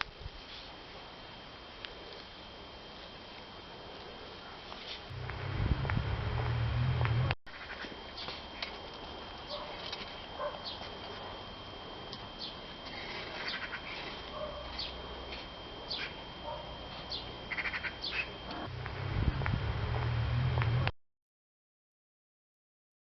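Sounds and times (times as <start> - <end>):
thin high-pitched whine: 0.0 - 20.9
small birds chirping: 10.5 - 10.9, 12.4 - 15.0, 15.8 - 16.2, 16.9 - 18.6.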